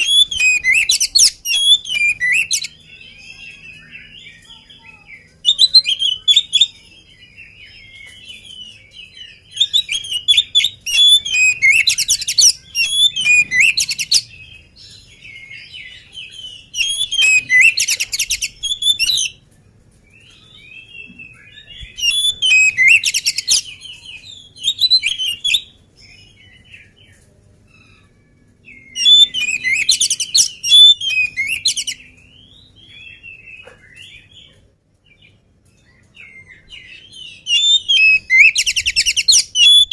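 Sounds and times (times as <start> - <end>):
bird singing whistled notes: 0.0 - 19.4, 20.4 - 26.9, 28.7 - 33.5, 36.2 - 39.9.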